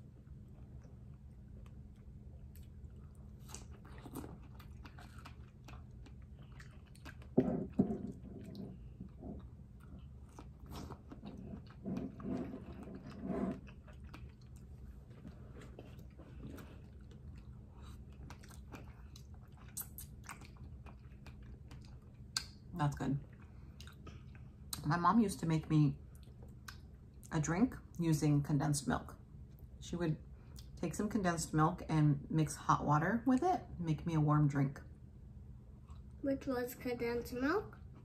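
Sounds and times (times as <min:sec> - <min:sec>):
low hum: 0:00.0 - 0:36.2
wet chewing and lip smacks: 0:00.2 - 0:24.9, 0:26.1 - 0:27.3.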